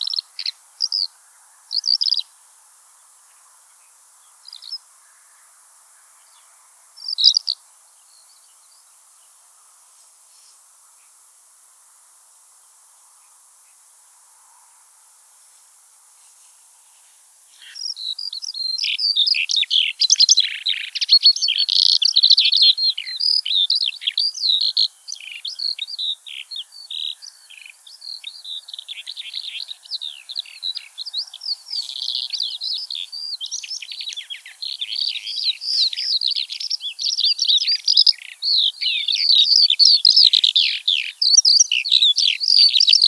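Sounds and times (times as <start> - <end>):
skylark singing: 0.0 - 1.1, 7.0 - 7.6, 17.6 - 43.0
faint hiss: 0.0 - 21.4.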